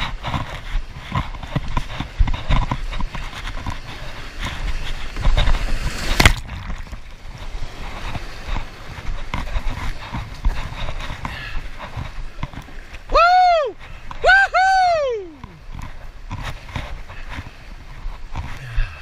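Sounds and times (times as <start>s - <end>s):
boat knocks and splashes: 0.0s - 14.4s
rushing whitewater: 0.0s - 19.0s.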